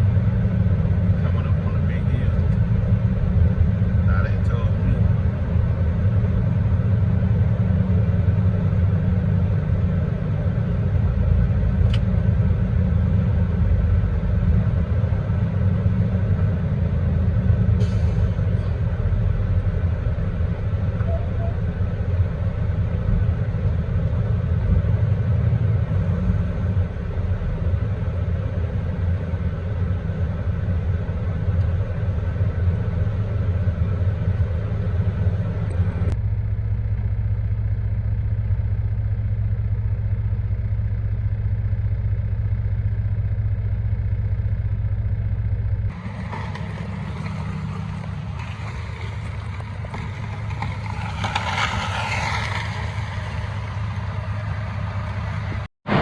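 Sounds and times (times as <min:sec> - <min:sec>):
hissing road noise: 0:00.0 - 0:36.2, 0:45.9 - 0:56.0
diesel engine drone: 0:00.0 - 0:56.0.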